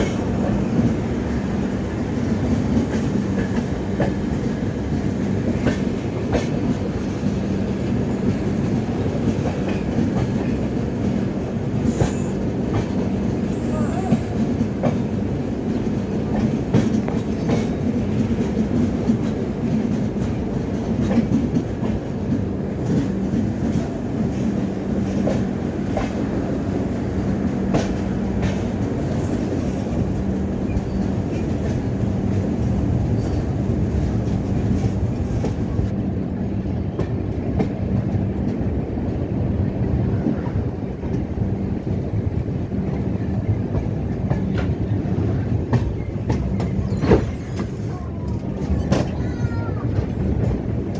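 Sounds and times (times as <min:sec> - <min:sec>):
train rumbling along track: 0:00.0 - 0:50.9
wheels clicking over rail joints: 0:42.8 - 0:50.9.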